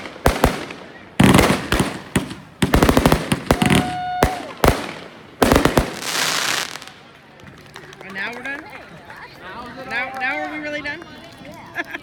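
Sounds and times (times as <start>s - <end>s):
fireworks bangs: 0.0s - 7.2s
fireworks crackling: 0.0s - 7.9s.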